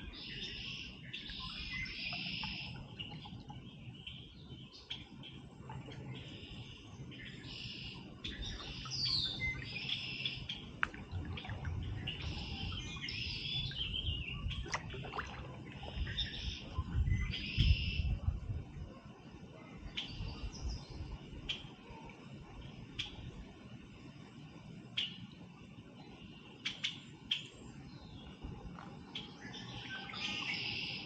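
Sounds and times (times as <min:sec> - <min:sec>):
songbirds singing: 0:00.0 - 0:31.0
low rumbling noise: 0:02.8 - 0:19.0.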